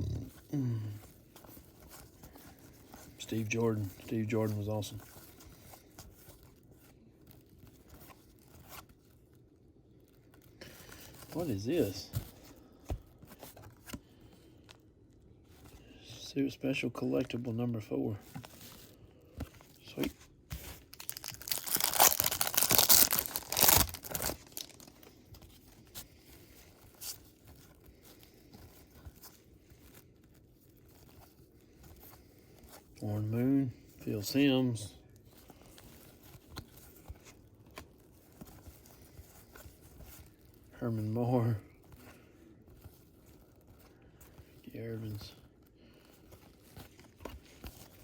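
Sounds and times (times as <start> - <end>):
trading cards and paper rustling: 0.2 - 48.0
wrapper tearing and crinkling: 20.6 - 25.1.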